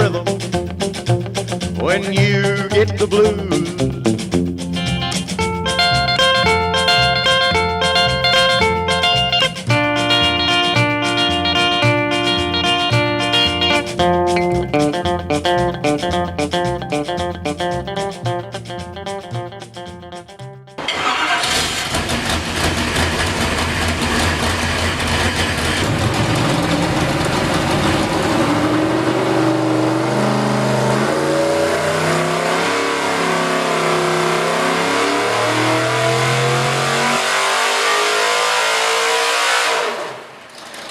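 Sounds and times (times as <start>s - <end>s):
guitar song: 0.0s - 21.4s, 25.9s - 37.1s
race car engine revving: 20.8s - 40.9s.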